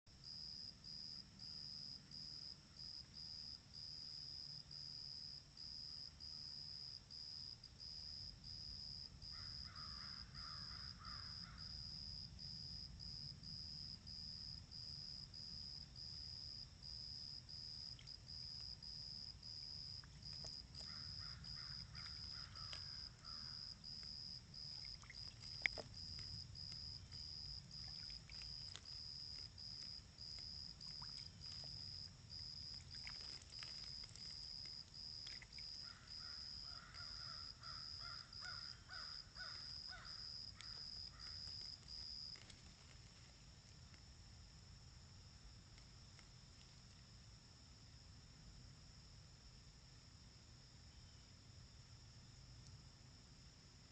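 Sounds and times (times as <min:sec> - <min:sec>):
cricket chirping: 0:00.1 - 0:53.9.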